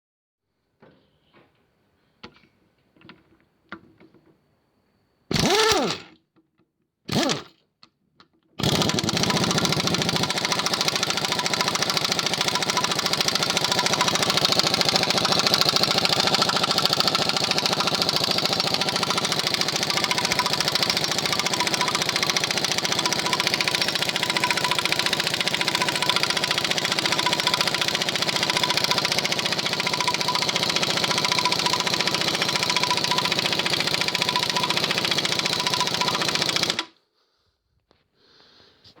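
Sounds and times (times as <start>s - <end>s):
motorcycle engine starting and running: 5.3s - 6.1s, 7.1s - 7.5s, 8.6s - 36.9s.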